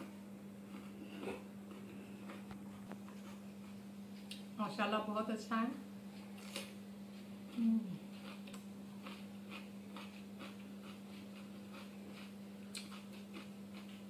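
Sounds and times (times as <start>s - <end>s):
person chewing crunchy food: 0.0s - 4.4s, 6.2s - 14.0s
steady low hum: 0.0s - 14.0s
person humming mm: 7.5s - 8.2s.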